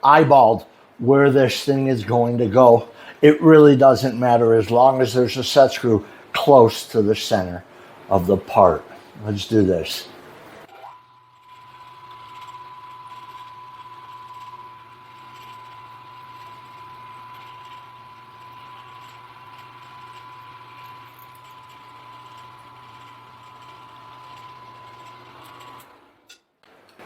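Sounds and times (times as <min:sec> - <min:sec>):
milling machine motor whining: 0:10.6 - 0:26.2.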